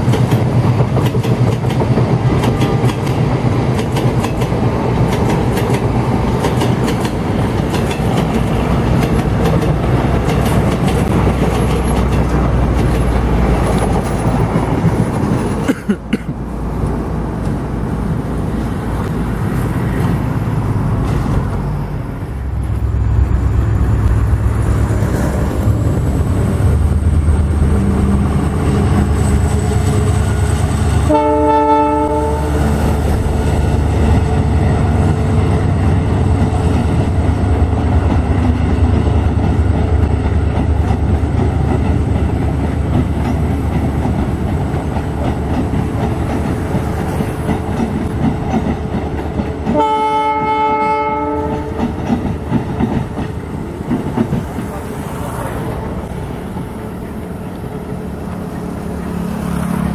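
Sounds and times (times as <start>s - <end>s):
train wheels and engine rumbling: 0.0s - 59.9s
train horn: 29.8s - 32.8s, 49.7s - 52.0s.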